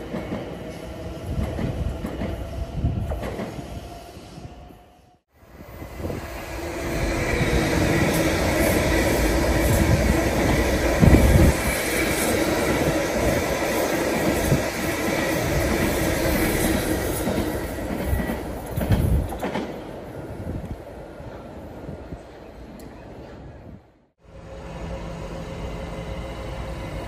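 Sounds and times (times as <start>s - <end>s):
train wheels rumbling on rail: 0.0s - 4.6s, 5.5s - 20.9s.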